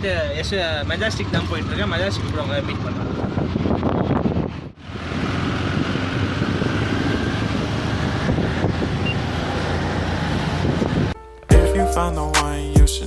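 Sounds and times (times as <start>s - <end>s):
auto-rickshaw engine running: 0.0s - 11.4s
road and traffic noise: 0.0s - 13.0s.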